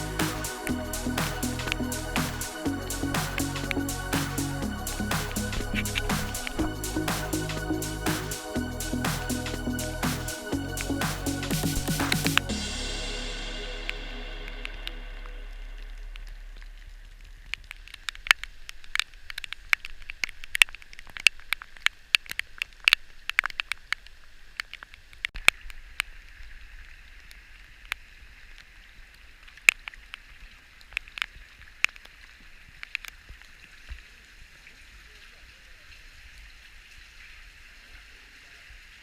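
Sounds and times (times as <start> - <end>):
steady hiss of water: 0.0 - 15.0
water drips and splashes: 0.0 - 25.0, 25.6 - 39.0.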